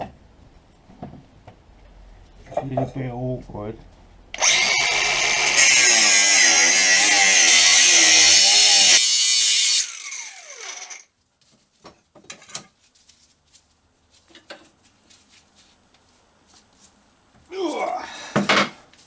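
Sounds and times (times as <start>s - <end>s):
angle grinder cutting metal: 4.4s - 11.0s
grinder disc spinning down: 4.4s - 11.0s.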